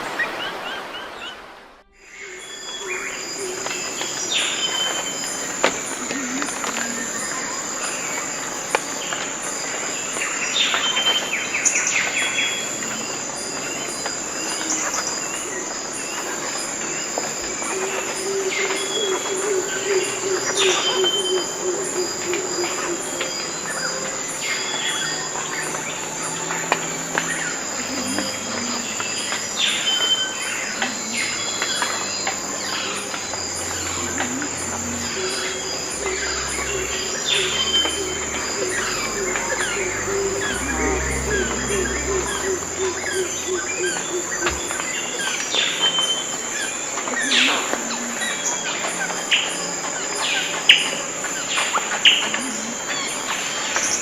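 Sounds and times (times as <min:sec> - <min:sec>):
high insect drone: 0:01.8 - 0:54.0
low trill: 0:32.4 - 0:44.8.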